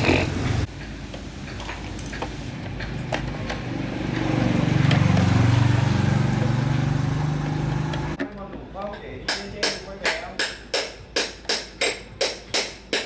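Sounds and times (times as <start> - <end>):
vehicle engine rumbling: 0.0 - 8.2.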